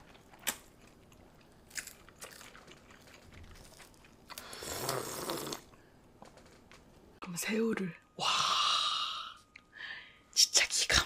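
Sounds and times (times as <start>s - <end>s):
crunching bite: 1.6s - 5.7s.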